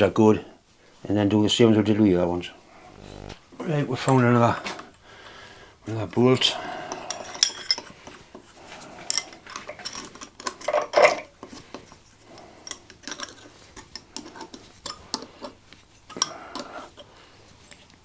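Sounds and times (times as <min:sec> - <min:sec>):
metal bolt and tools clinking: 0:06.9 - 0:08.2, 0:09.1 - 0:12.0, 0:12.6 - 0:16.7.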